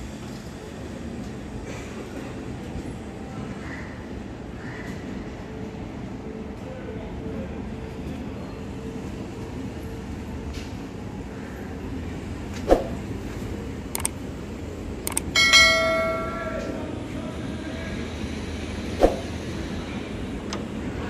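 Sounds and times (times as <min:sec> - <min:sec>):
train rumbling slowly: 0:00.0 - 0:21.0
clicks: 0:14.0 - 0:14.2, 0:15.1 - 0:15.3
bell-like metallic ring: 0:15.4 - 0:17.0
sharp knock: 0:19.0 - 0:19.4.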